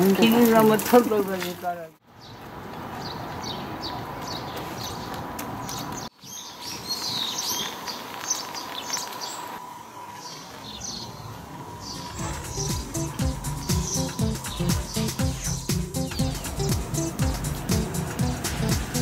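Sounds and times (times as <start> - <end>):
small birds chirping: 2.1 - 19.0
outdoor background hiss: 6.1 - 19.0.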